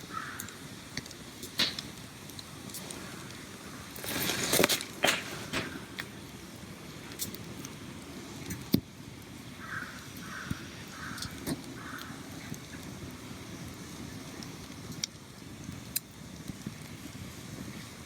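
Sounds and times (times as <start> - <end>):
crackling snaps: 0.0 - 17.8
crow cawing: 0.1 - 0.6, 9.6 - 12.2
brief rustle: 4.0 - 5.9.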